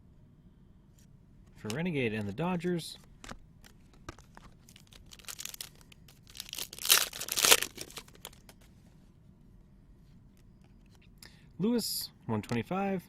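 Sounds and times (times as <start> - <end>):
handling rustles and clicks: 3.0 - 8.8
wrapper crinkling: 3.6 - 8.6
wrapper tearing: 4.1 - 8.5.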